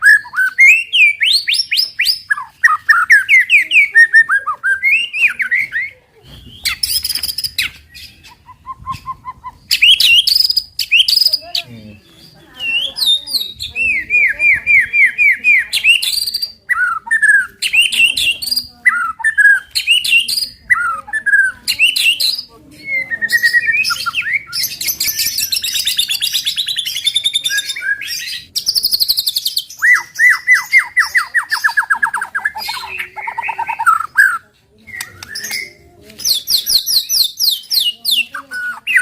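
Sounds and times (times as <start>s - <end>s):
songbird singing: 0.0s - 39.0s.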